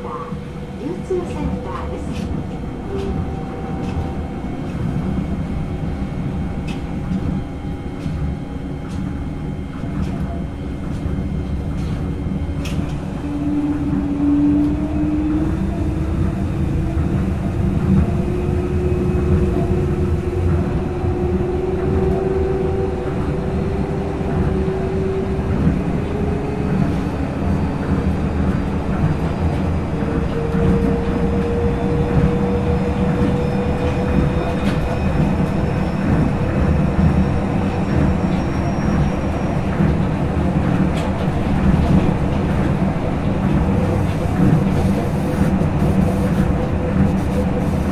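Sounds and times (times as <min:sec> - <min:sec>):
train motor rumble: 0:00.0 - 0:47.9.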